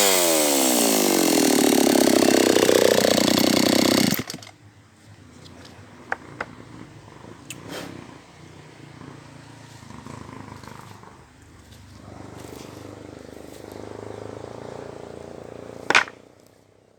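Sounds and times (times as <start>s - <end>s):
chainsaw idling: 0.0s - 4.6s, 15.8s - 16.2s.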